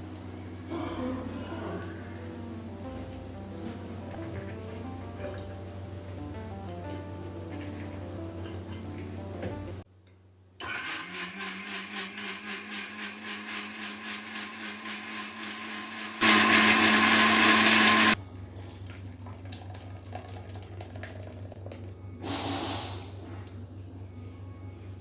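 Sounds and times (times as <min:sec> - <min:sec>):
mixer grinder motor running: 0:10.6 - 0:18.2.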